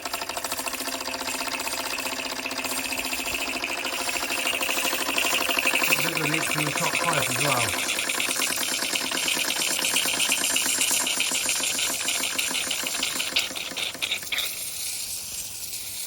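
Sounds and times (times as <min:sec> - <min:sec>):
toy steam engine chuffing: 0:00.0 - 0:16.0
faint hiss of steam: 0:14.2 - 0:16.0.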